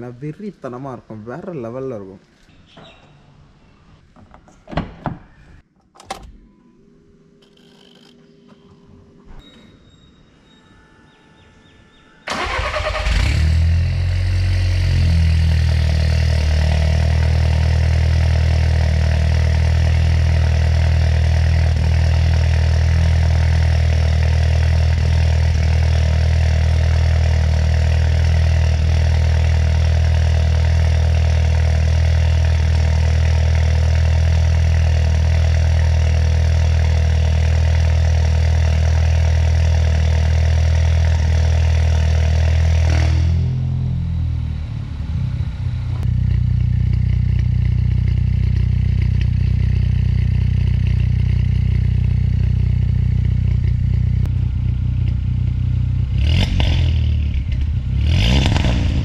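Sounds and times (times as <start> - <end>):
car engine starting and idling: 12.3 - 59.0.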